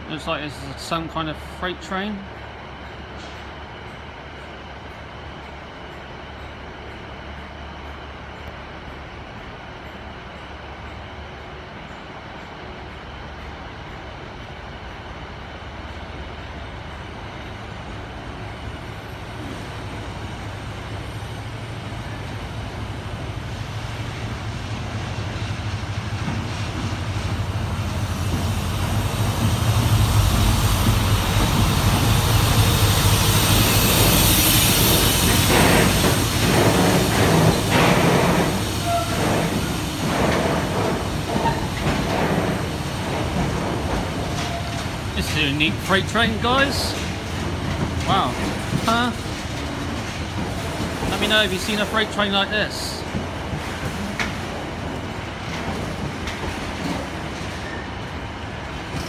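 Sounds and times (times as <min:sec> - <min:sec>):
diesel locomotive engine passing: 0:00.0 - 0:59.0
freight wagons rolling with hiss: 0:21.0 - 0:59.0.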